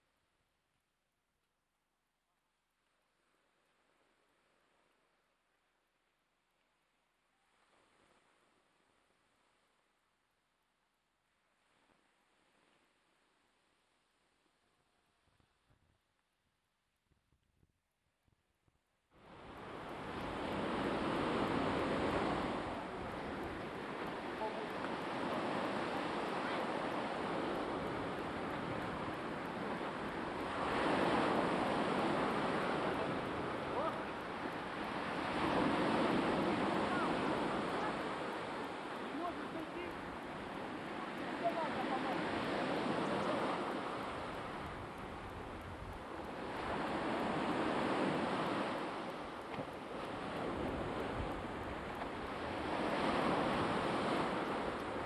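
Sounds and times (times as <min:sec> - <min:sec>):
waves washing onto shore: 0:07.3 - 0:10.0, 0:19.2 - 0:55.0.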